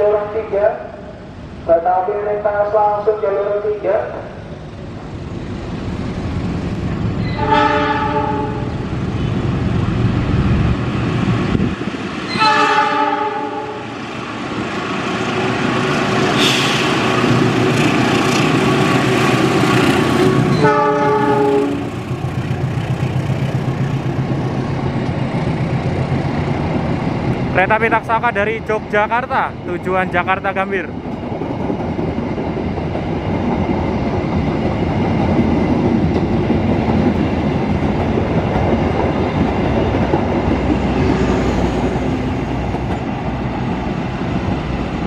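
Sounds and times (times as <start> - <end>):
train horn blasts: 7.2 - 8.7, 12.3 - 13.8, 20.4 - 21.9
locomotive engine running: 17.2 - 30.1.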